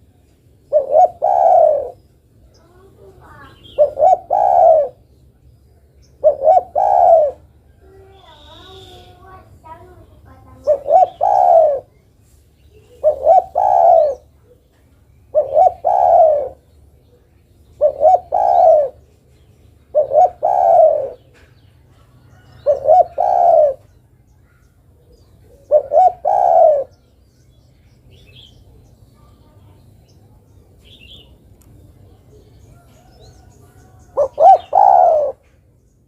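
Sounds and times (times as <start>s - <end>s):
dove cooing: 0.6s - 5.1s, 6.2s - 9.2s, 10.5s - 12.0s, 12.8s - 19.2s, 19.9s - 27.0s, 32.1s - 35.6s.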